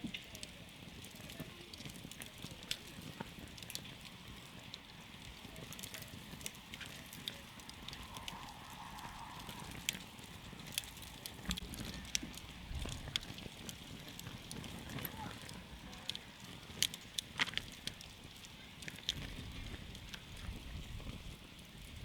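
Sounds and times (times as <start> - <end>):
campfire crackling and popping: 0.0 - 22.0
low rumble of burning: 0.0 - 22.0.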